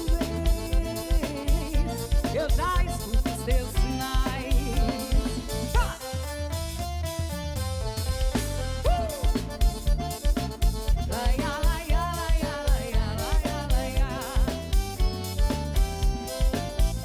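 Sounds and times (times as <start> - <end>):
kick drum beat: 0.0 - 6.0, 8.8 - 17.0
live band playing: 0.0 - 17.0
sliding melodic lead line: 0.0 - 17.0.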